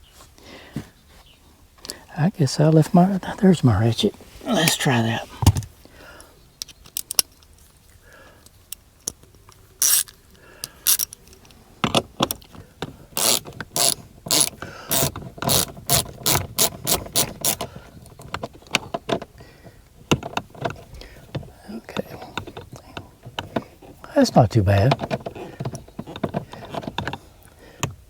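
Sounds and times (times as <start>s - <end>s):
socket ratchet clicking: 9.8s - 12.5s, 13.2s - 19.3s.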